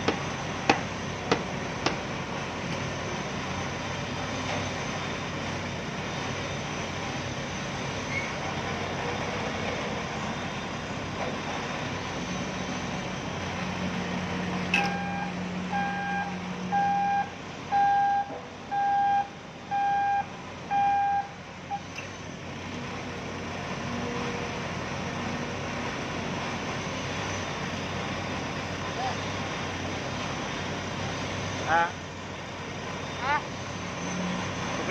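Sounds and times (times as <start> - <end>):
reversing alarm beeping: 14.7 - 22.0.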